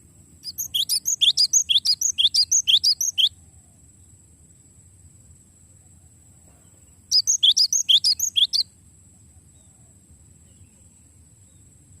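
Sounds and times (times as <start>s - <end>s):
bird singing rapid sharp notes: 0.4s - 3.4s, 6.8s - 8.7s.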